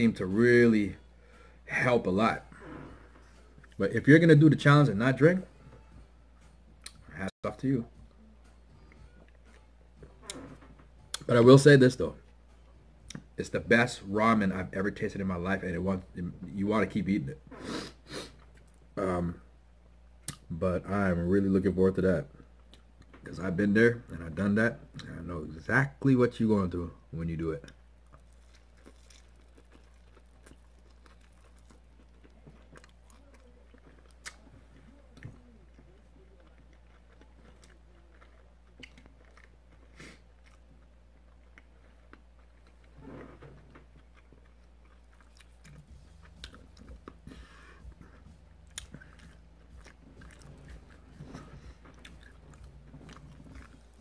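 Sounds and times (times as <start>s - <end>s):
person chewing chicken wings: 27.7s - 43.0s, 43.8s - 54.0s.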